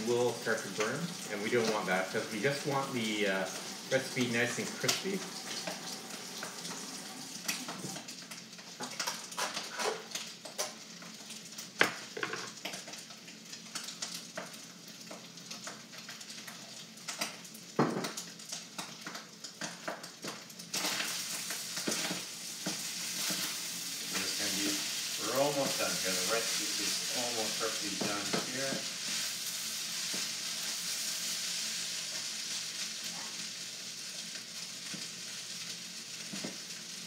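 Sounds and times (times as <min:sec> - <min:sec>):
rice sizzling in a wok: 0:00.0 - 0:37.0.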